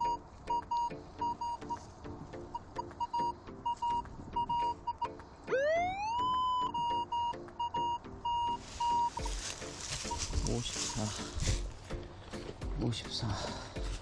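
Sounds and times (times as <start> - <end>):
metal detector short beeps: 6.6 - 9.3.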